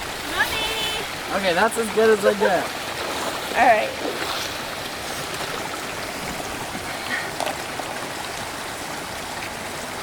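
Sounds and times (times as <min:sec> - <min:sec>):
stream rushing: 0:00.0 - 0:10.0.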